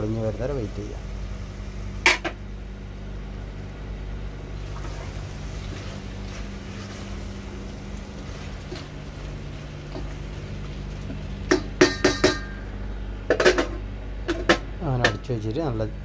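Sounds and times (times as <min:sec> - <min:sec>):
low mechanical hum: 0:00.0 - 0:16.0
metal lid clanking onto pot: 0:11.5 - 0:12.6.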